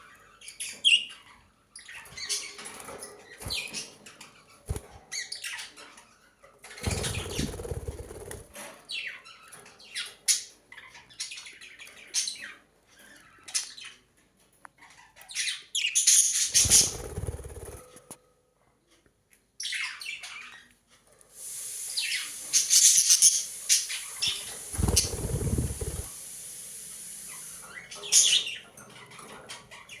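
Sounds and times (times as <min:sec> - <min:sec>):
wings fluttering: 0:04.7 - 0:05.1, 0:06.8 - 0:08.6, 0:16.4 - 0:18.2, 0:22.2 - 0:26.2
budgerigars chirping: 0:22.3 - 0:26.1.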